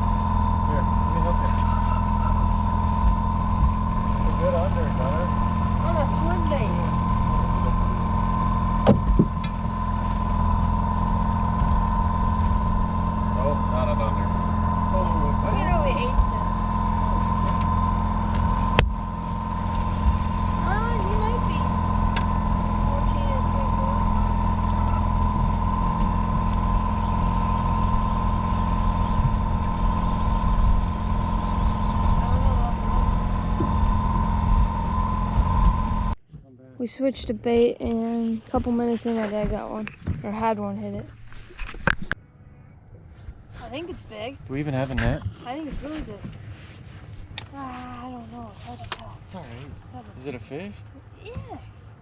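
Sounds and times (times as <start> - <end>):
boat motor whining: 0.0 - 52.0
sharp knocks: 8.8 - 9.7.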